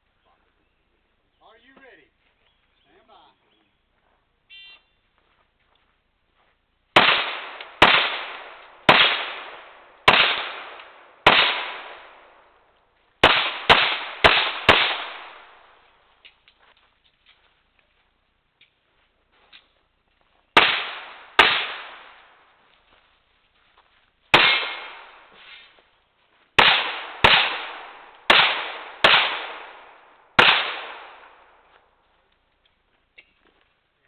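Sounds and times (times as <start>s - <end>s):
pistol shots with echo: 7.0s - 12.4s, 13.2s - 15.7s, 20.6s - 22.4s, 24.4s - 25.3s, 26.6s - 31.6s.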